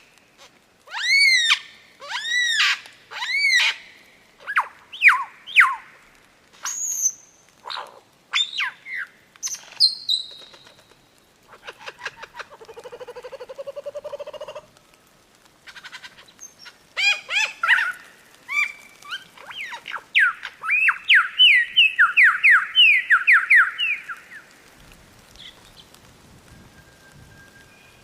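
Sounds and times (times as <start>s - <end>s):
faint steady hiss: 0.0s - 28.0s
songbird singing: 6.6s - 14.7s, 15.8s - 24.6s, 25.3s - 28.0s.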